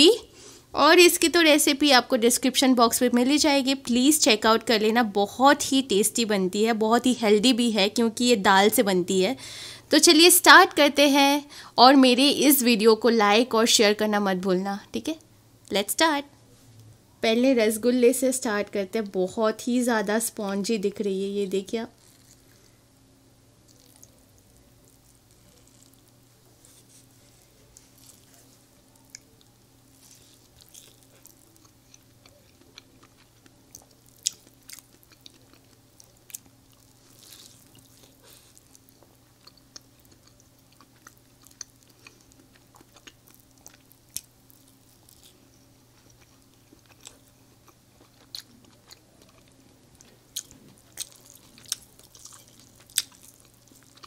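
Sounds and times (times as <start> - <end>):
wet chewing and lip smacks: 23.7 - 26.2, 29.0 - 54.0.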